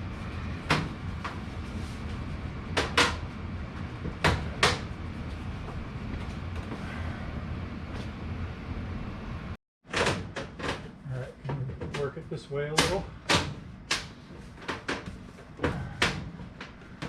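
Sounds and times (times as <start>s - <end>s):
steady low hum: 0.0s - 9.6s
knocks and clunks of duct parts: 0.4s - 6.9s, 9.8s - 17.0s.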